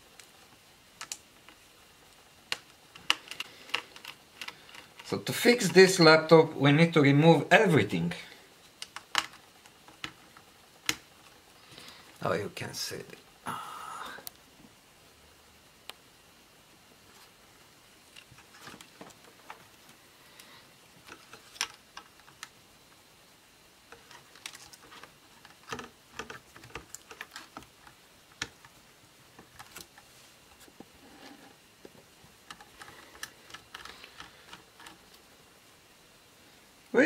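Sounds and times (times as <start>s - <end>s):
laptop parts clicking and tapping: 1.0s - 1.6s, 2.4s - 5.1s, 8.7s - 11.1s, 23.9s - 28.8s.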